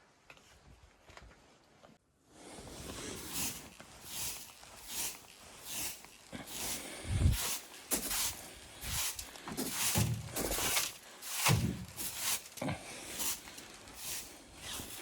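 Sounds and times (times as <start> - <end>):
crunching with low thuds: 7.0 - 12.4.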